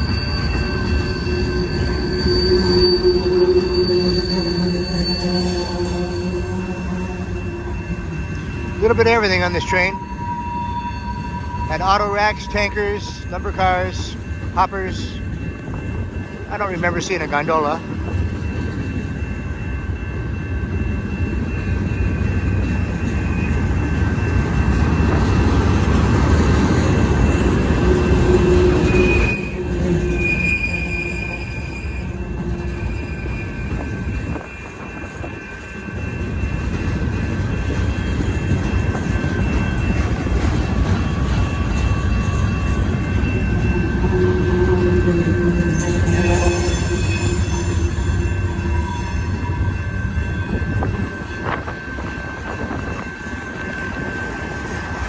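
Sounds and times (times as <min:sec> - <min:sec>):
high-pitched wheel squeal: 0:00.0 - 0:07.9, 0:08.5 - 0:13.3, 0:27.7 - 0:34.0
train wheels rumbling on rail: 0:00.0 - 0:55.0.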